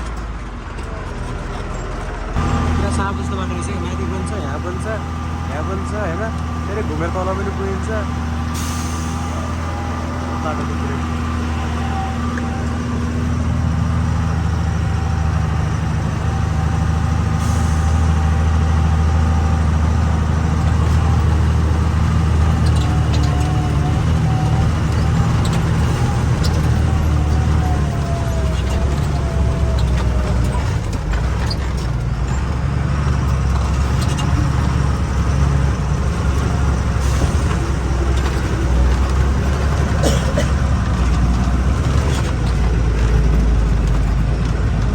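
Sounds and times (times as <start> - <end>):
truck engine under load: 0.0 - 44.9
knocks and rattles: 18.2 - 44.9.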